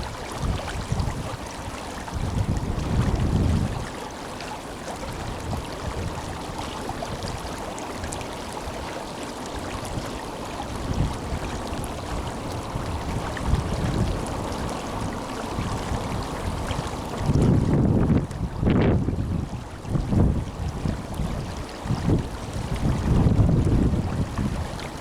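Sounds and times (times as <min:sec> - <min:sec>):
wind buffeting microphone: 0:00.0 - 0:04.0, 0:05.0 - 0:08.9, 0:09.6 - 0:25.0
river water rushing: 0:00.0 - 0:18.0.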